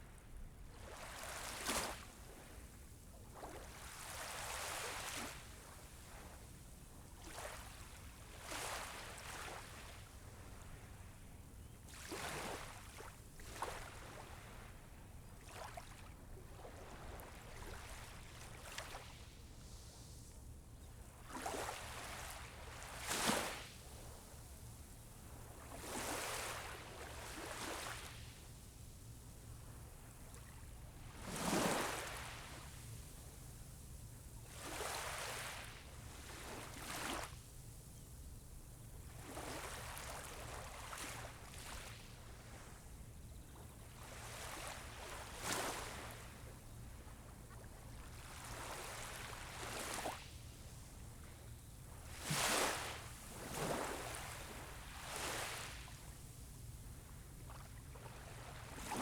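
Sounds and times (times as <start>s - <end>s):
waves breaking on a beach: 0.0s - 6.2s, 21.0s - 24.1s, 24.8s - 28.6s, 29.6s - 33.4s, 34.4s - 37.4s, 39.0s - 59.0s.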